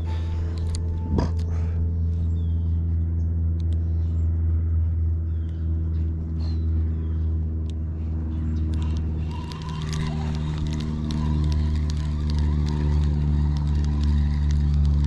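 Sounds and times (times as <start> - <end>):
low motor hum: 0.0 - 15.0
faint high chirps and clicks: 8.6 - 15.0.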